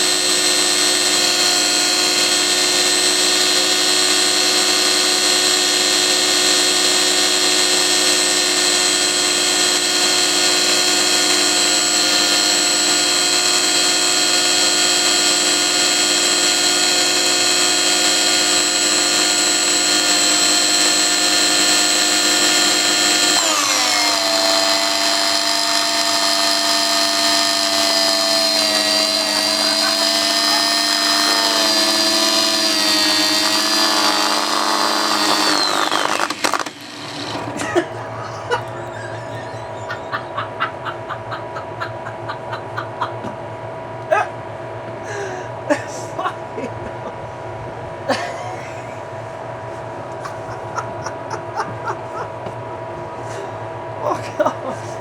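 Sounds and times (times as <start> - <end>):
electric motor whining: 0.0 - 40.3.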